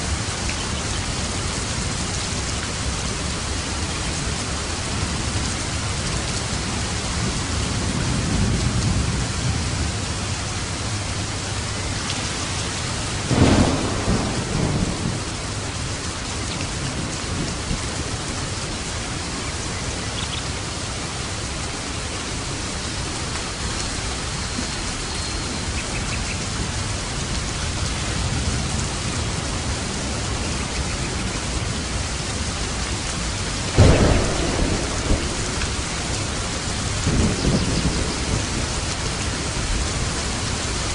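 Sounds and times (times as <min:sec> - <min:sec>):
heavy rain on a roof: 0:00.0 - 0:40.9
low thunder rumbles: 0:00.1 - 0:20.9, 0:26.4 - 0:40.9
sharp thunderclap: 0:13.3 - 0:15.8, 0:33.8 - 0:40.1.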